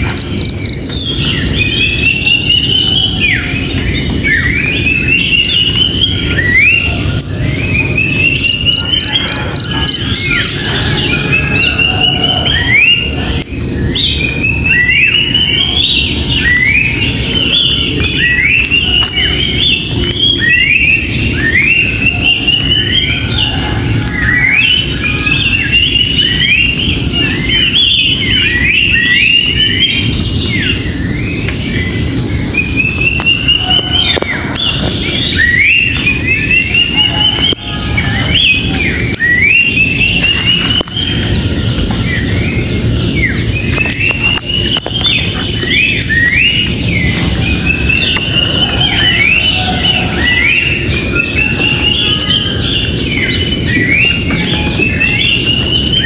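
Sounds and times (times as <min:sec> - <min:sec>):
steady low rumbling noise: 0:00.0 - 0:56.0
wild birds singing: 0:00.0 - 0:56.0.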